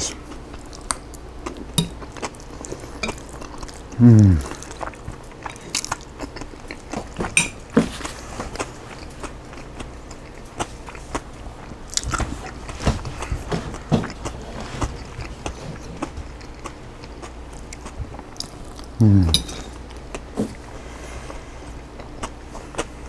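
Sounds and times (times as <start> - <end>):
crunchy chewing: 0.0 - 23.0
mouth clicks: 19.0 - 19.6.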